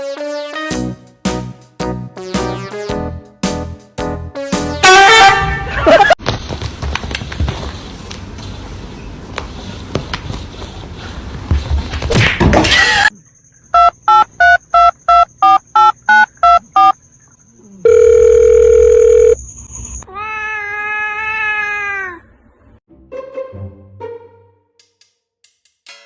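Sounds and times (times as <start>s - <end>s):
telephone keypad beeps: 13.8s - 17.0s, 17.9s - 19.4s
steady phone tone: 17.8s - 19.4s.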